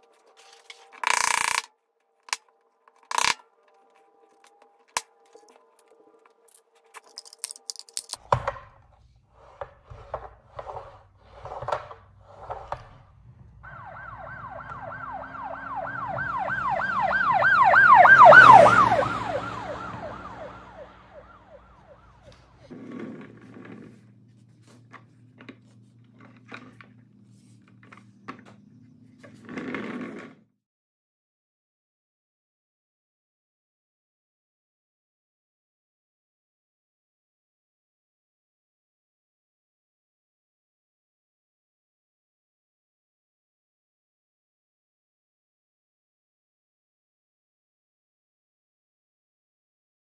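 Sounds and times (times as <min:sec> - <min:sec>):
police siren yelp: 0:13.6 - 0:22.7.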